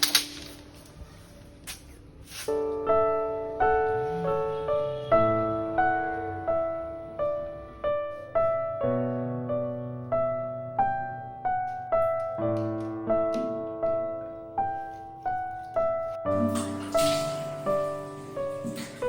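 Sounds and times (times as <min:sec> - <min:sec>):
gentle piano melody: 0:02.5 - 0:19.0.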